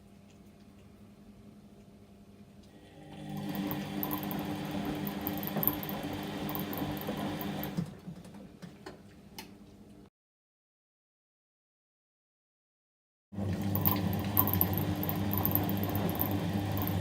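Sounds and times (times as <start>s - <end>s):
washing machine motor hum: 2.7s - 8.8s, 13.4s - 17.0s.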